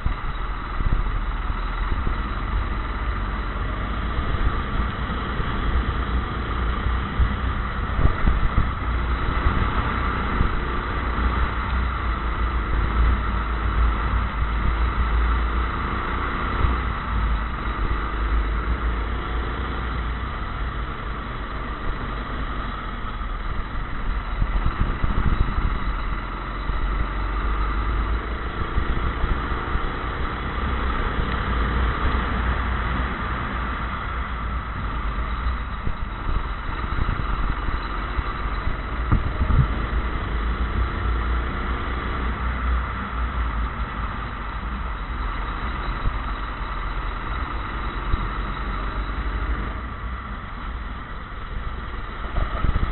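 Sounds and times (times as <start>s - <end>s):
go-kart engine revving: 0.0s - 52.9s.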